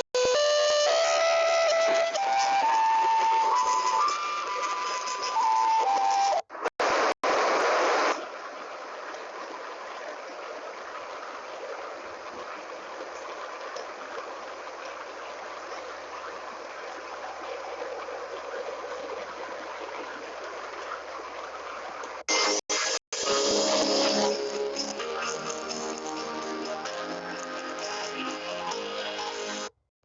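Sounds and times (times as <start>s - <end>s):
stream water rushing: 0.8s - 22.4s.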